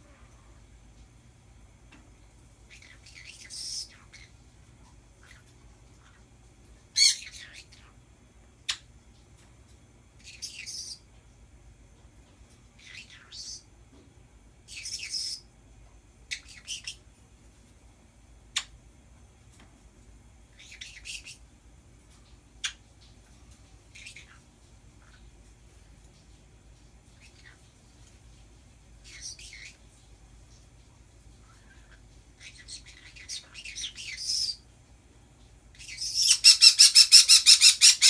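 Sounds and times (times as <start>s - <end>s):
pet birds squawking and chirping: 2.7s - 6.3s, 7.0s - 8.0s, 10.2s - 11.1s, 12.8s - 13.7s, 14.7s - 15.5s, 16.3s - 17.0s, 20.5s - 21.4s, 23.9s - 25.3s, 27.1s - 27.7s, 29.0s - 29.8s, 31.4s - 34.6s, 35.8s - 38.0s.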